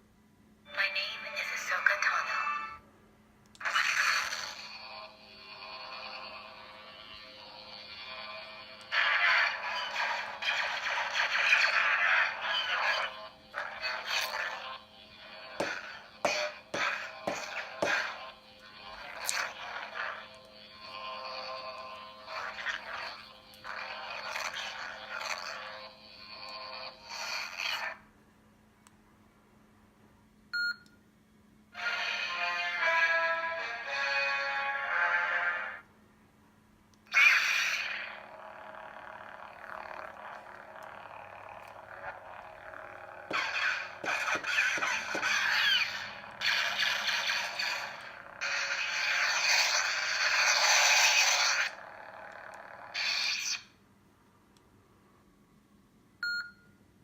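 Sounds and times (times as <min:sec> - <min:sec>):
faint steady hum: 0:00.0 - 0:37.2, 0:53.6 - 0:57.0
lightsaber buzzing hum: 0:03.6 - 0:28.1, 0:37.1 - 0:53.8.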